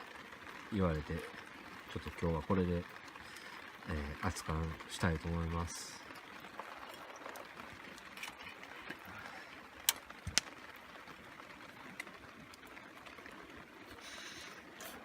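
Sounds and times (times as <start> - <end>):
rain hissing: 0.0 - 15.0
river flowing: 0.0 - 15.0.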